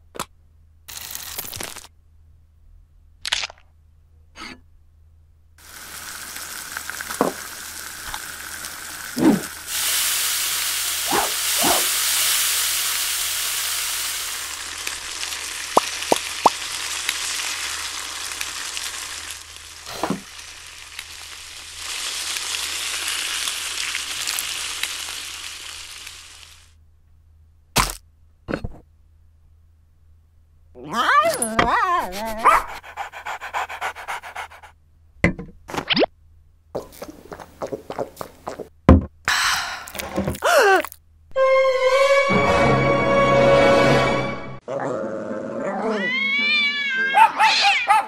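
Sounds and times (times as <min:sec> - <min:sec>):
fat sizzling in a pan: 0:05.6 - 0:26.8.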